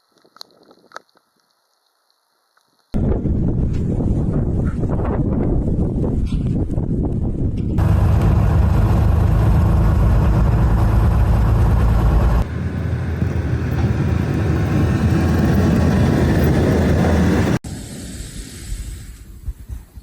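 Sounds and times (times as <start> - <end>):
motor vehicle rumble: 3.0 - 17.6.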